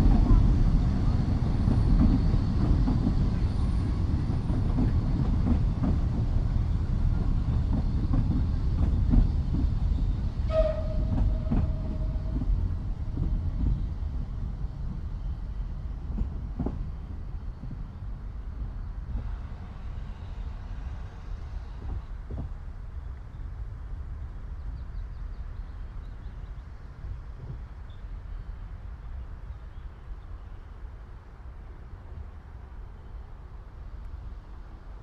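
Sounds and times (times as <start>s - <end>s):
steam train rumbling past: 0.0s - 35.0s.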